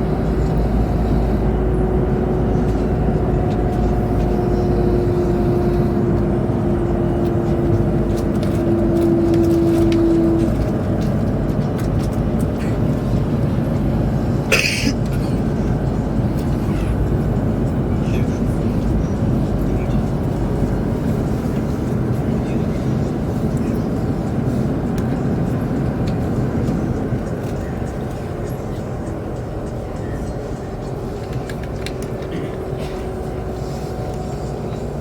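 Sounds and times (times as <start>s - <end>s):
train cabin rumble and hiss: 0.0s - 35.0s.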